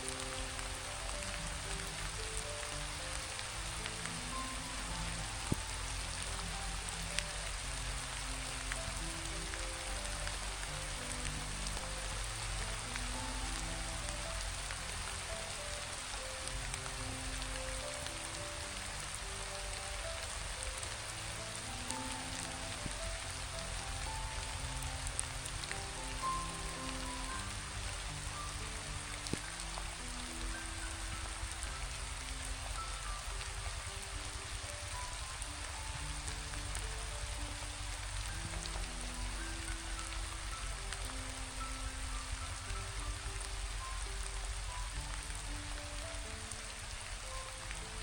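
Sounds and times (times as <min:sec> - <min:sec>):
soft slow background music: 0:00.0 - 0:48.0
steady rain falling: 0:00.0 - 0:48.0.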